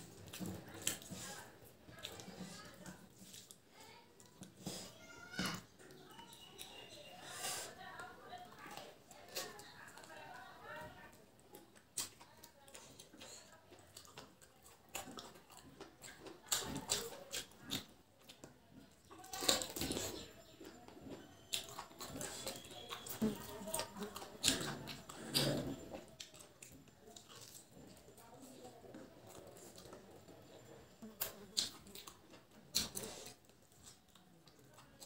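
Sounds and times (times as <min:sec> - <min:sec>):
wet chewing and lip smacks: 0:11.4 - 0:35.0.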